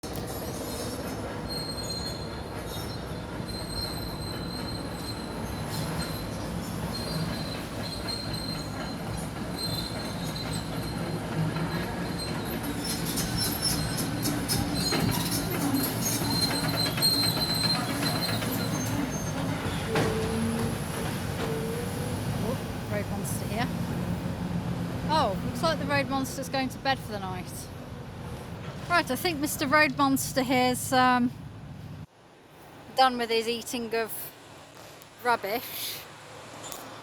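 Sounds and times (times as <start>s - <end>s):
excavator engine rumble: 8.7s - 32.1s
high metallic squeal: 12.2s - 22.0s.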